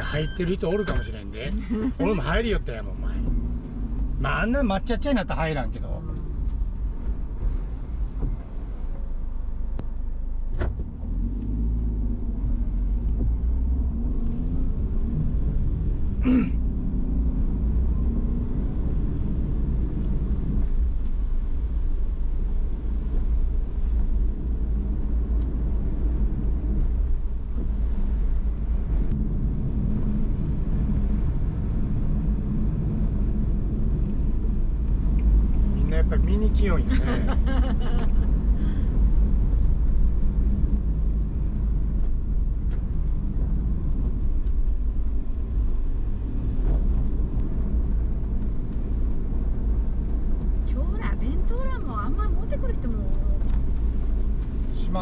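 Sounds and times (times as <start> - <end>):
car cabin road and engine noise: 0.0 - 55.0.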